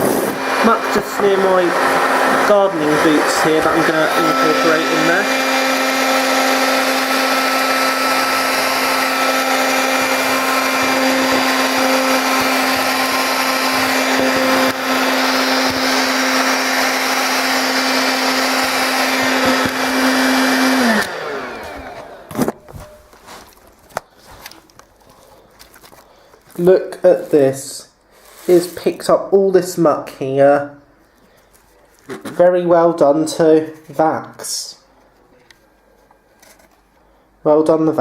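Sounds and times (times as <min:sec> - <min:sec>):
vacuum motor winding down: 0:00.0 - 0:22.9
handheld vacuum cleaner running: 0:00.0 - 0:24.9.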